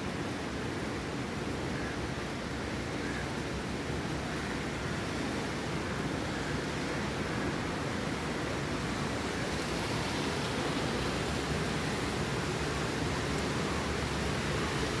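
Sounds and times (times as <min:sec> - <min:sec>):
heavy rain pouring: 0:07.0 - 0:15.0.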